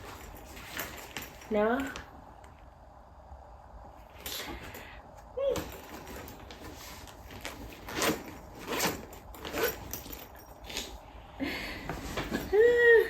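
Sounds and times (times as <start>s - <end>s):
gift bag rustling and scraping: 0.0s - 1.7s, 5.6s - 11.1s, 11.8s - 12.7s.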